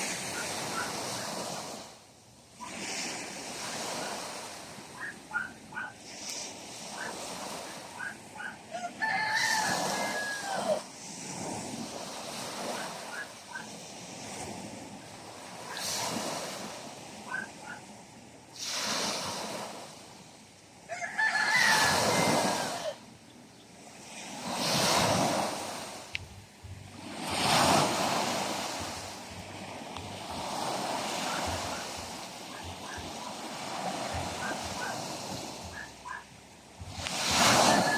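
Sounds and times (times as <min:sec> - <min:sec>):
sea waves breaking on shore: 0:00.0 - 0:37.9
rooster crowing: 0:08.7 - 0:10.8, 0:20.9 - 0:23.0, 0:37.4 - 0:37.9.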